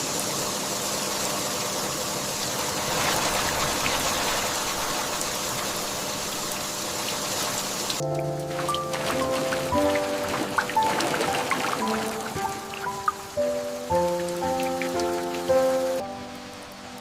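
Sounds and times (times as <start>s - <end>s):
steady rain hiss: 0.0s - 17.0s
soft music notes: 8.0s - 17.0s.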